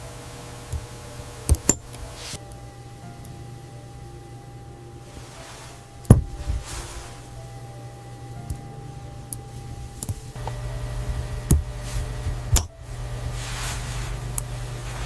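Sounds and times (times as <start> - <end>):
steady low hum: 0.0 - 15.0
soft swishing strokes: 5.0 - 7.6, 13.3 - 15.0.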